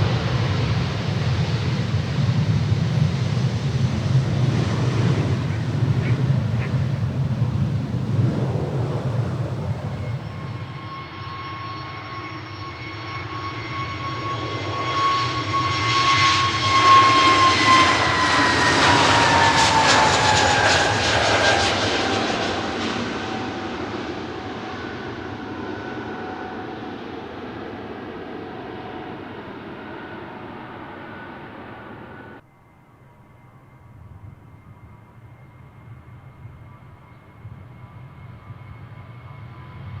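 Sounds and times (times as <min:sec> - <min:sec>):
low rumble: 0:00.0 - 0:10.8
jet taking off: 0:00.0 - 0:32.4, 0:34.2 - 0:40.0.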